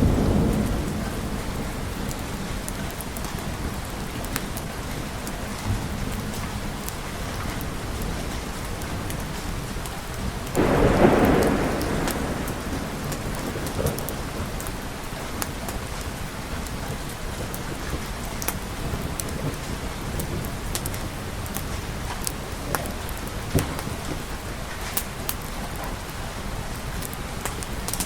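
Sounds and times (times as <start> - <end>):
thunder clap: 0.0 - 4.2, 10.5 - 18.0
steady rain falling: 0.0 - 28.0.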